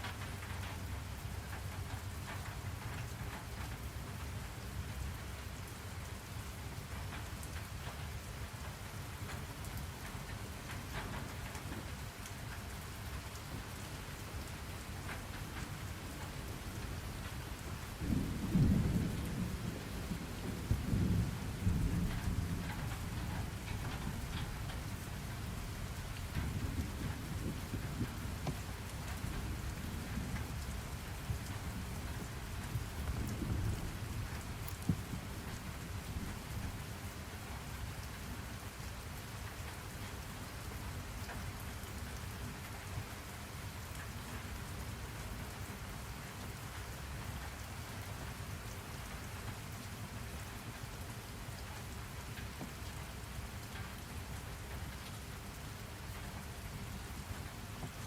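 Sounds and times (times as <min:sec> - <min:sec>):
steady rain falling: 0:00.0 - 0:58.0
thunder rumbling: 0:16.2 - 0:36.9.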